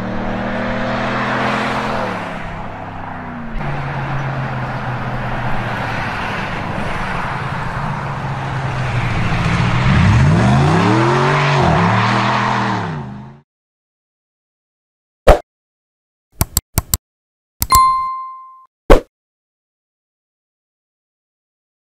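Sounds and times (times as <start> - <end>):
truck engine revving: 2.8 - 13.4.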